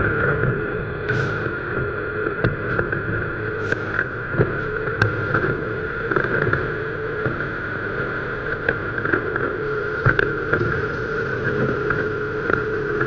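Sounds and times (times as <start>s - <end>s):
hydraulic whine: 0.0s - 13.0s
diesel excavator engine running: 1.0s - 7.6s.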